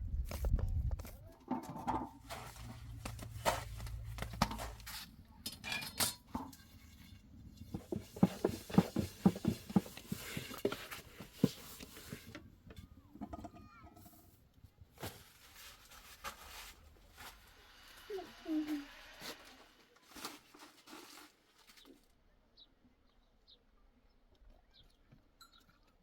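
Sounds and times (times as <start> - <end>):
objects knocking and clattering: 0.5 - 14.2.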